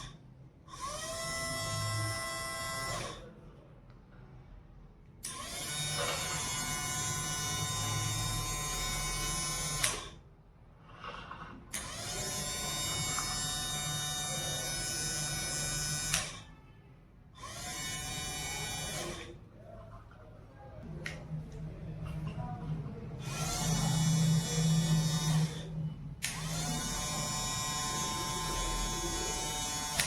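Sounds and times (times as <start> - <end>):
small motor whining: 11.8 - 16.4, 23.2 - 30.0.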